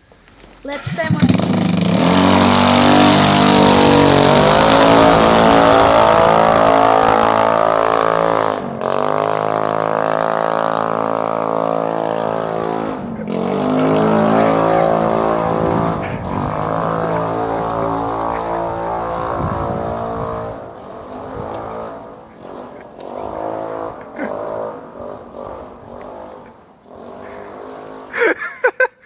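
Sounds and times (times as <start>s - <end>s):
scooter engine revving: 0.8s - 28.5s.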